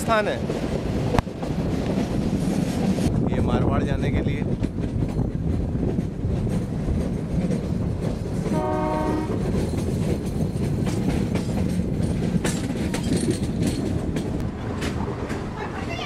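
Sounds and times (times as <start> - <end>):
train rumble and wheel clatter: 0.0 - 16.0
locomotive horn blast: 8.5 - 9.4.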